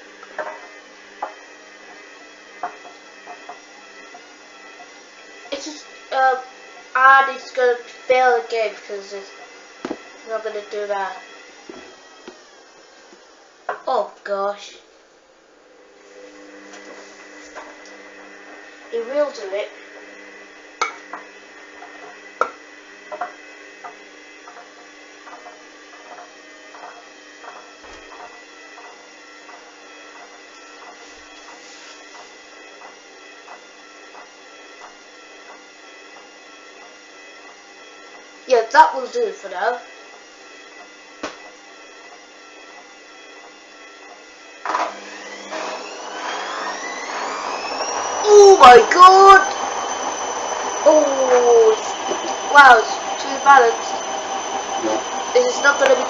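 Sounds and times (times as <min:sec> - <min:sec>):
motor whine rising in pitch: 0:00.0 - 0:13.8, 0:15.4 - 0:56.0
washing machine hum: 0:15.3 - 0:56.0.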